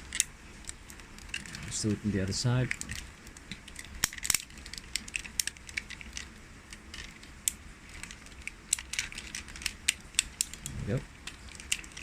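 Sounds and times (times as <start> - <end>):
plastic toy joints clicking: 2.6 - 12.0.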